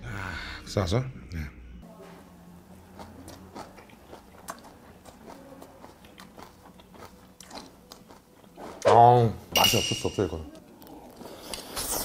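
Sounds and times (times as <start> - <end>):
man chewing food: 2.7 - 8.8, 10.5 - 12.0.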